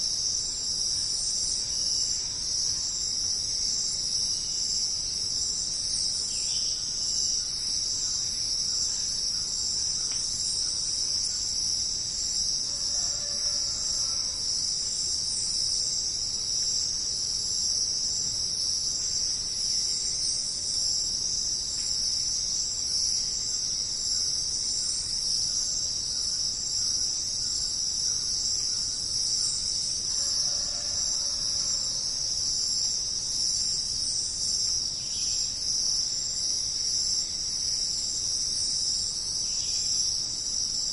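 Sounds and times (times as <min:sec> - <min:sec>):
crickets chirring: 0:00.0 - 0:40.9.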